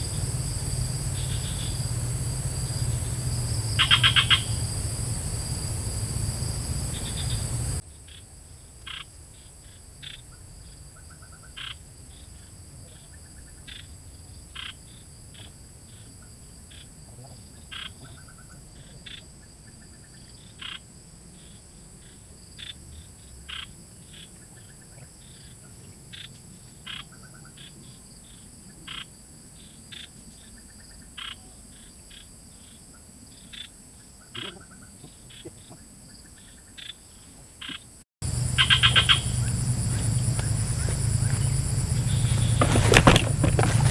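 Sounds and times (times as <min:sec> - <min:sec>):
frog calls: 0:00.0 - 0:08.2, 0:11.0 - 0:11.8, 0:14.6 - 0:20.9, 0:28.7 - 0:29.2, 0:32.9 - 0:43.9
high insect trill: 0:00.0 - 0:34.7, 0:38.2 - 0:43.9.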